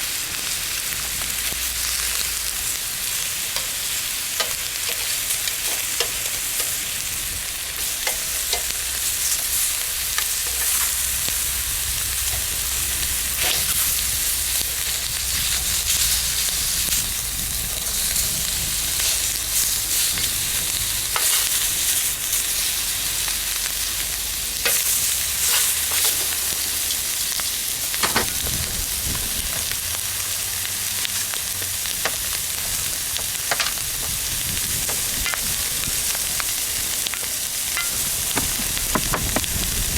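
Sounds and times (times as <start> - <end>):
bacon and eggs sizzling: 0.0 - 39.9
fat popping and crackling: 27.8 - 29.8, 31.9 - 39.9.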